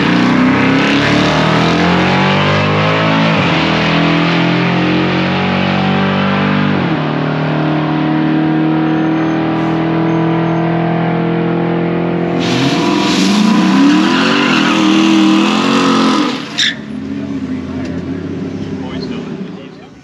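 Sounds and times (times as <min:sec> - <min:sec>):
car engine running loudly: 0:00.0 - 0:20.0.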